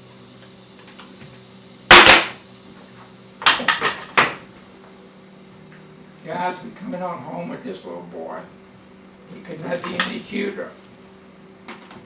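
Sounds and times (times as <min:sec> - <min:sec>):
nail gun firing into wood: 0:01.9 - 0:02.4.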